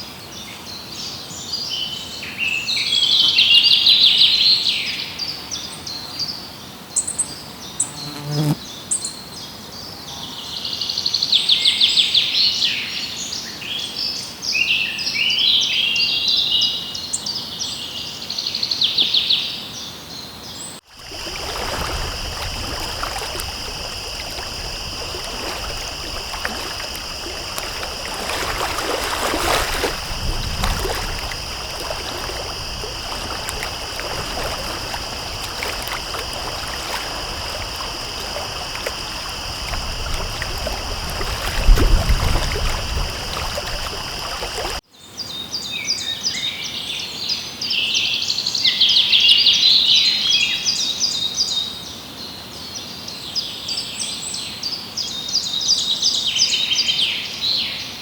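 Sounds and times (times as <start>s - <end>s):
stream water running: 20.9s - 44.8s
songbirds trilling: 21.0s - 44.8s.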